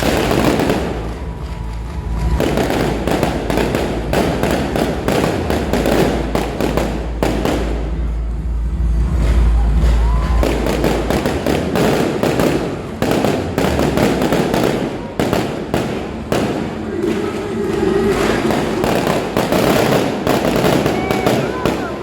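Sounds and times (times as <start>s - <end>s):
fireworks popping and crackling: 0.0s - 8.2s, 9.0s - 22.0s
deep rumbling boom: 0.0s - 22.0s.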